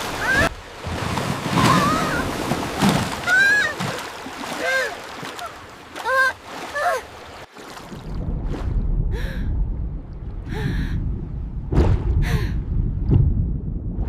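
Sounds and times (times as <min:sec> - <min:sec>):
low rumble: 0:08.0 - 0:14.0.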